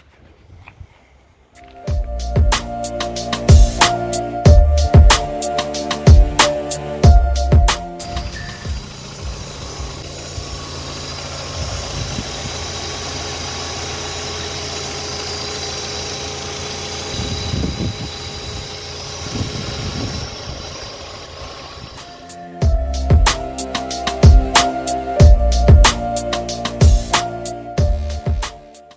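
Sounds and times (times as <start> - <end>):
car engine running: 8.0 - 22.4.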